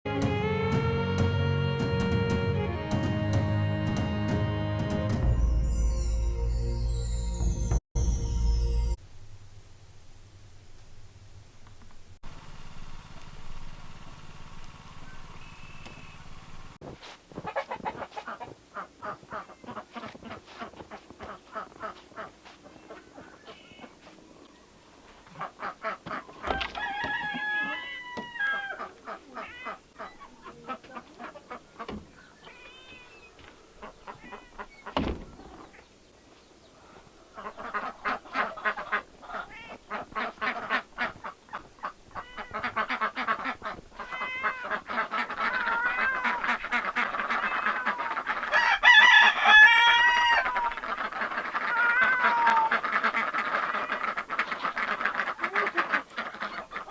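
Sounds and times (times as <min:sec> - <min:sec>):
music: 0:00.1 - 0:09.0
poultry calling: 0:17.4 - 0:56.9.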